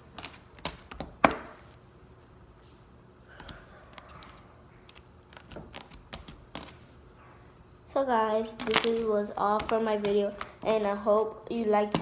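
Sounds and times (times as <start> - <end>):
faint clicks and taps: 8.6 - 11.3.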